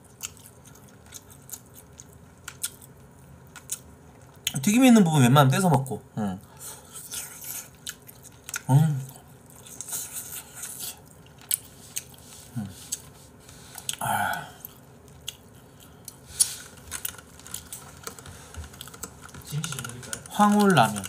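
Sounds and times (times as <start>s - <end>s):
person chewing noodles: 0.0s - 4.5s, 6.5s - 21.0s.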